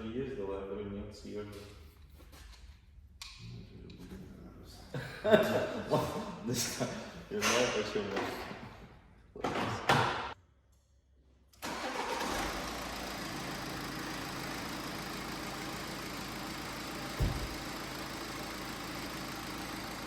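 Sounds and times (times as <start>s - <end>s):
car engine starting and idling: 11.6s - 20.0s
low thud: 17.2s - 17.6s.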